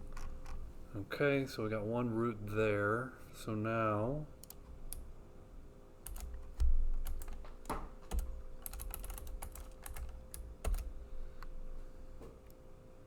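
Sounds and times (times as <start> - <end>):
faint steady hum: 0.0 - 13.0
typing on computer keyboard: 4.4 - 5.1, 6.0 - 11.0.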